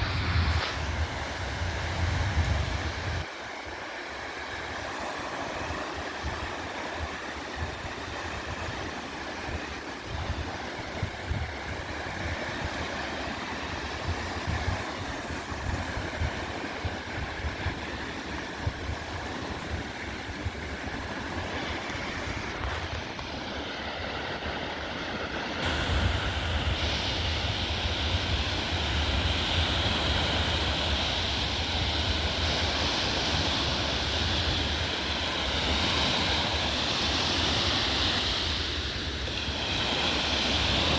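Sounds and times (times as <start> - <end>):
waves on the shore: 0.0 - 40.9
wind buffeting microphone: 0.0 - 40.9.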